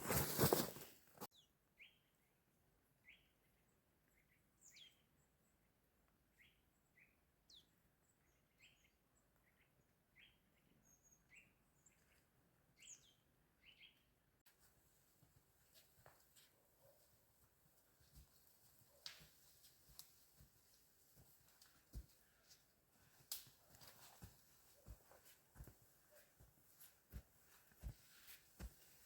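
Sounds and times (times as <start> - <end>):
small songbirds chirping: 1.3 - 14.4.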